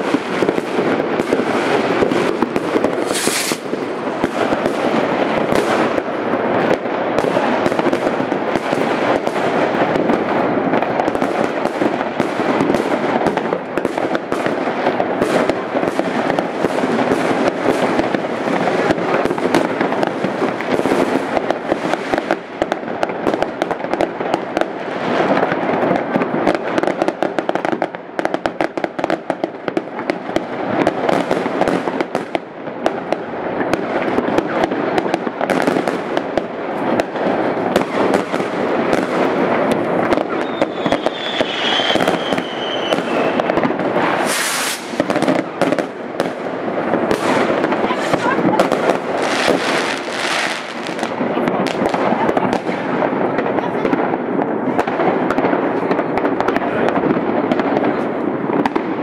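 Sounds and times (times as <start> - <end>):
fireworks and firecrackers banging: 0.0 - 59.0
firework whistle falling in pitch: 40.4 - 43.4, 44.2 - 44.9.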